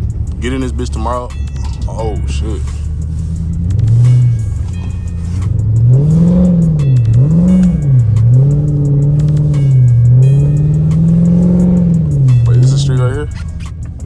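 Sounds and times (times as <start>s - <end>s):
car engine revving hard: 3.0s - 13.6s.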